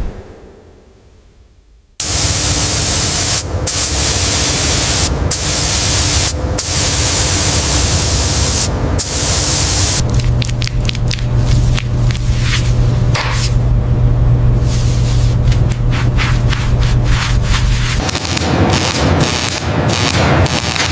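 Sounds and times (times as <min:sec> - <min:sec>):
faint steady hum: 0:00.0 - 0:18.0
high-pressure spray hissing: 0:02.0 - 0:10.0.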